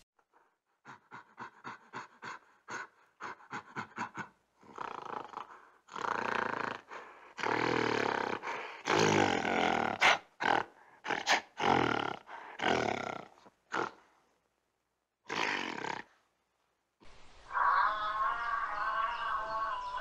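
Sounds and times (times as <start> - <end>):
gorilla roar-like calls: 17.5 - 20.0.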